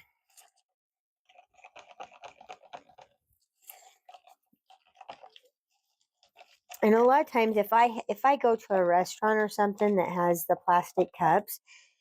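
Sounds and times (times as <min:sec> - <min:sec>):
stir stick scraping in plastic cup: 0:00.3 - 0:07.5.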